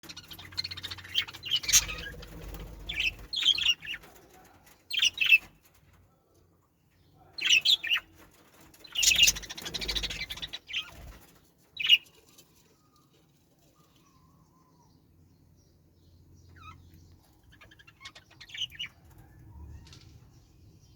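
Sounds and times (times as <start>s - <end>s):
parrots chirping: 0.0s - 4.0s, 8.9s - 10.9s, 16.4s - 19.2s.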